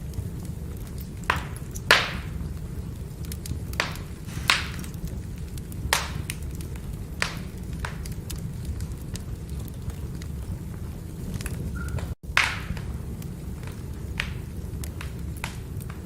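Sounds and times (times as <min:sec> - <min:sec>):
firewood burning rumble: 0:00.0 - 0:16.0
small crackles: 0:00.0 - 0:16.0
logs popping: 0:03.2 - 0:12.9.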